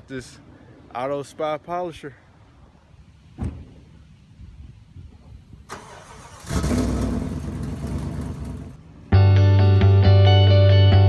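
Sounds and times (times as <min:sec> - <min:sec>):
pickup truck engine starting and idling: 0:05.7 - 0:08.8.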